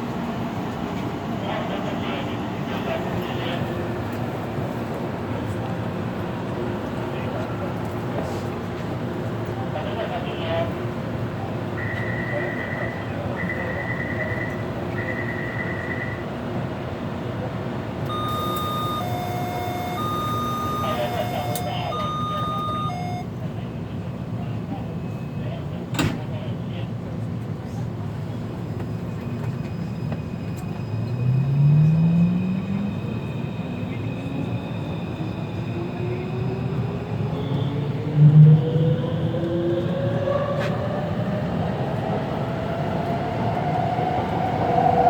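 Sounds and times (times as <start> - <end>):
train rumbling in motion: 0.0 - 45.0
chime of steady tones: 18.1 - 23.3
high even whine: 18.1 - 23.3.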